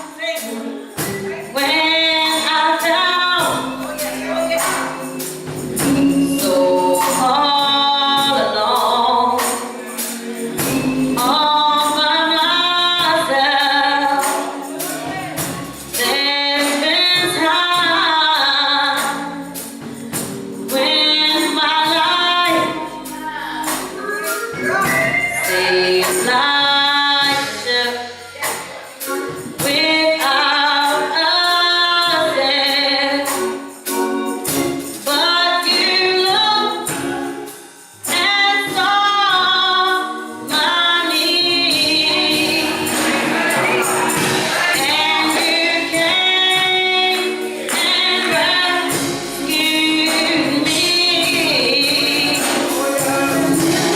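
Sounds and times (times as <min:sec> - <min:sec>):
gospel choir singing: 0:00.0 - 0:53.9
tambourine shaken and struck: 0:00.0 - 0:53.9.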